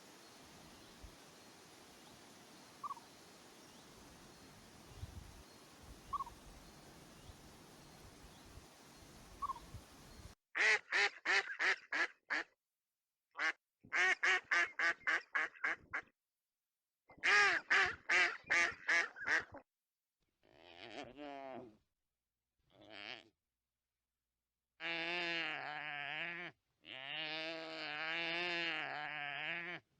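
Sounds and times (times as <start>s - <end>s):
tiny bird chirps: 2.8s - 3.1s, 4.9s - 10.3s
duck quacking: 10.6s - 12.5s.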